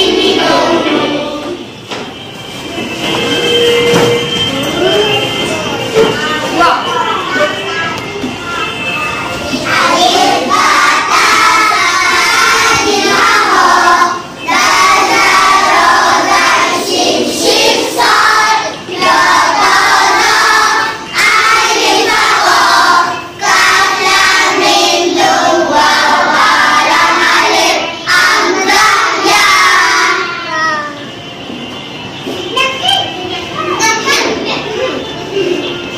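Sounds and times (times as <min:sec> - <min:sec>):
children singing in unison: 0:00.0 - 0:01.8, 0:09.4 - 0:31.0.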